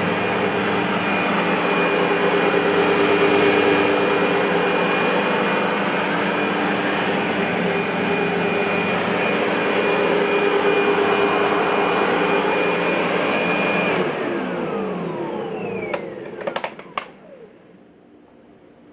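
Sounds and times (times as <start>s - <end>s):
vacuum cleaner whining: 0.0s - 17.9s.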